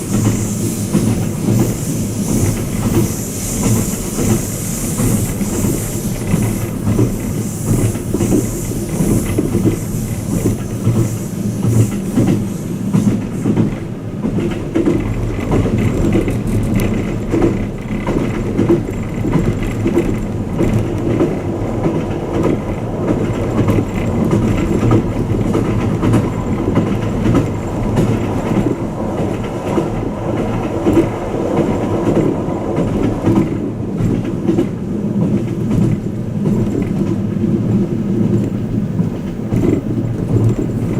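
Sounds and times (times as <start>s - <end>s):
high hiss: 0.0s - 13.6s
train wheels rumbling on rail: 0.0s - 40.9s.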